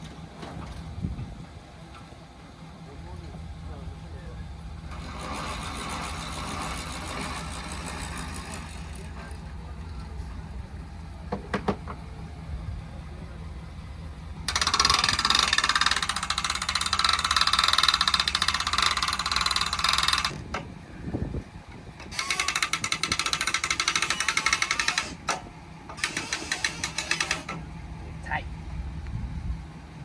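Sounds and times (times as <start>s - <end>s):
ratchet clicking rapidly: 14.5s - 20.4s, 22.1s - 25.4s, 26.0s - 27.6s.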